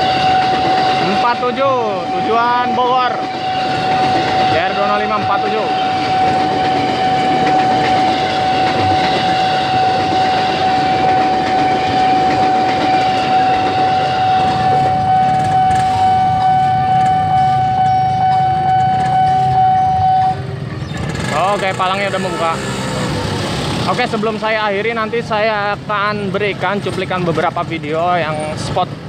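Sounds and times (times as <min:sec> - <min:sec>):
level crossing alarm tone: 0:00.0 - 0:20.4
train rolling past: 0:00.0 - 0:29.0.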